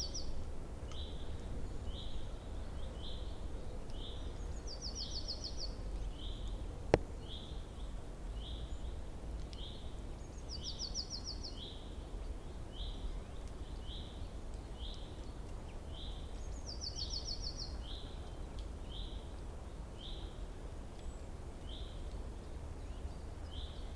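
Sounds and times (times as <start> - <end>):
low background rumble: 0.0 - 10.6
small songbirds calling: 0.0 - 23.9.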